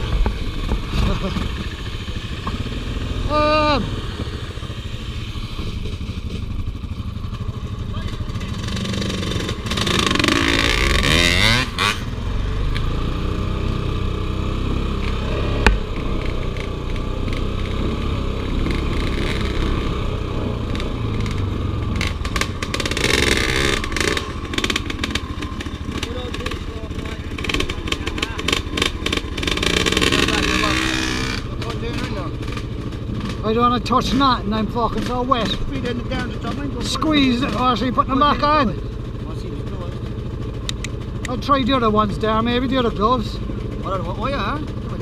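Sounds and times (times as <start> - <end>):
motorcycle engine revving: 0.0 - 45.0
sharp click: 40.6 - 41.4.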